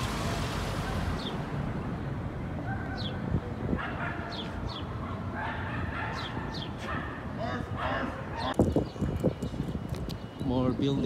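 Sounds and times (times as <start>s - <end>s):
low hum of traffic: 0.0s - 11.0s
birds chirping: 2.7s - 5.0s, 5.8s - 11.0s.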